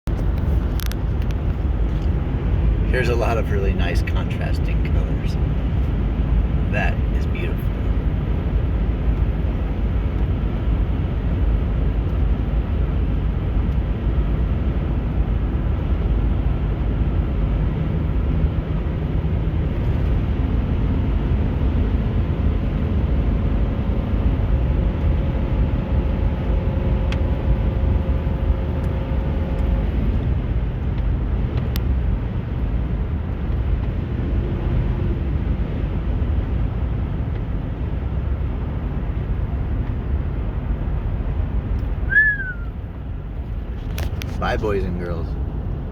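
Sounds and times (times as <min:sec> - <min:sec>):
vehicle road and engine rumble: 0:00.0 - 0:45.9
faint hum shifting in pitch: 0:24.5 - 0:30.2, 0:42.1 - 0:42.8.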